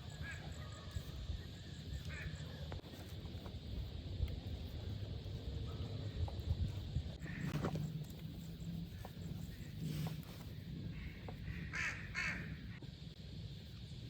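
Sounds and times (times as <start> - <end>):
harsh bird calls: 8.9 - 12.8.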